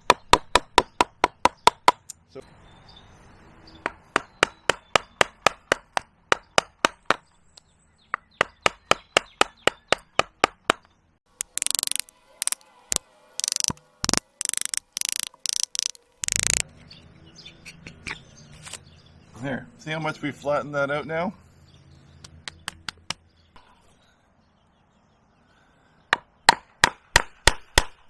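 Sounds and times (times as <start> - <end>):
mallet tapping carving gouge: 11.4 - 12.6, 13.4 - 16.6.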